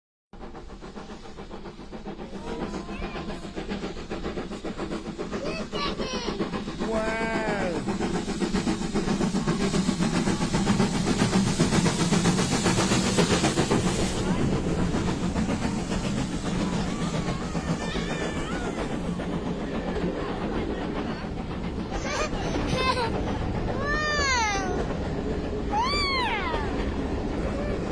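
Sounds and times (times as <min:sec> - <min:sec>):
steam train rumbling and rattling: 0:00.4 - 0:27.9
people calling out: 0:16.6 - 0:19.2.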